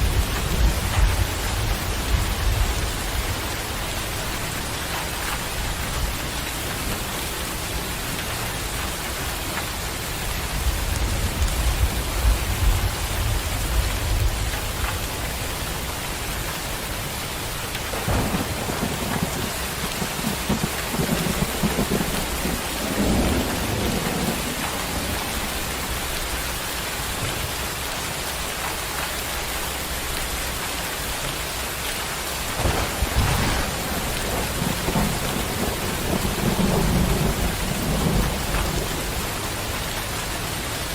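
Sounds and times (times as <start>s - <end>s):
steady rain: 0.0s - 40.9s
rolling thunder: 17.8s - 26.4s, 32.4s - 40.6s.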